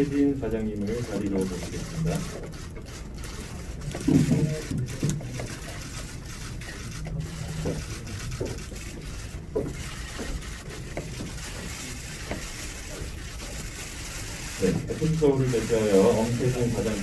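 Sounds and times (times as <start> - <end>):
low murmurs: 0.0 - 12.2
room noise: 0.0 - 17.0.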